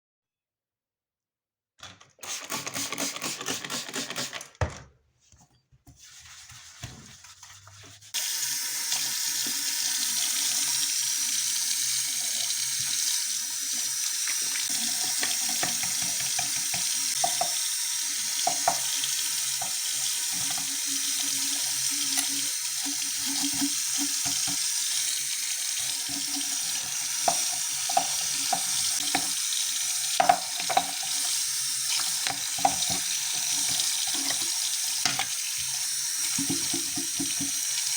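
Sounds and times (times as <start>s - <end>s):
tap water running into sink: 8.2s - 37.9s.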